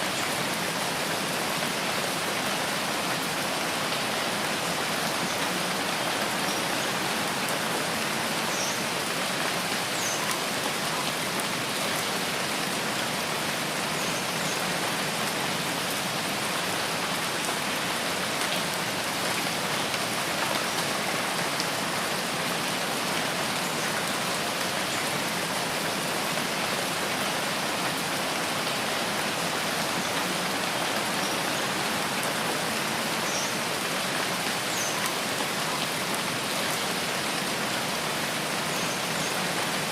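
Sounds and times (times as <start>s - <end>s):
rain on leaves: 0.0s - 39.9s.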